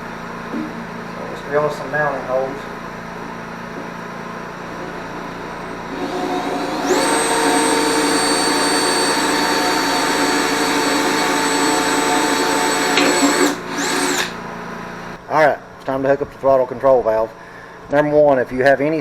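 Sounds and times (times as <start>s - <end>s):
electric drill whining: 4.7s - 14.4s.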